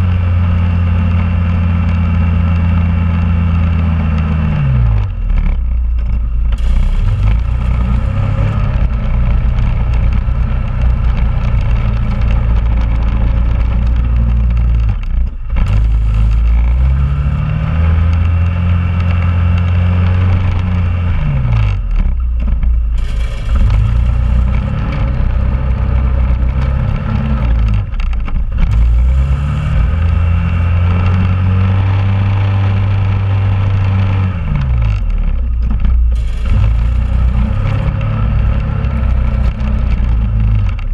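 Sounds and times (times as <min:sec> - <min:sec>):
atv engine revving: 0:00.0 - 0:40.9.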